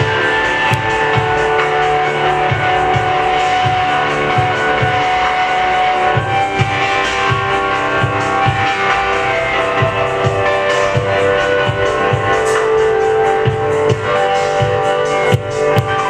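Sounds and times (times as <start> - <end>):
guitar and keyboard chords: 0.0 - 16.0
kick drum beat: 13.4 - 16.0.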